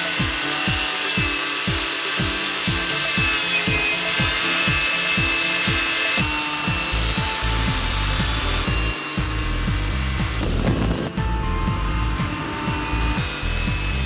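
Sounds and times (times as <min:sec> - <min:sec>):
electronic kick drum beat: 0:00.0 - 0:14.0
low bass line: 0:06.8 - 0:14.0.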